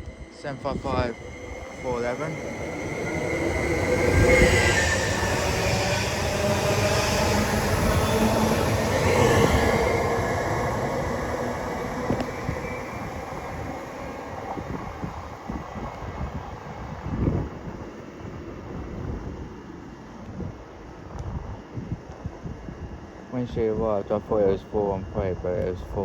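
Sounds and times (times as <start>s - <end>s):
train pulling out: 0.0s - 20.1s.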